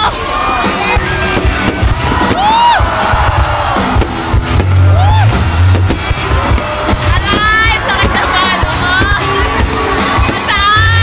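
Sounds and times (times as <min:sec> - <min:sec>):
crowd whooping and cheering: 0:00.0 - 0:11.0
fireworks popping and bursting: 0:00.0 - 0:11.0
music over loudspeakers: 0:00.0 - 0:11.0.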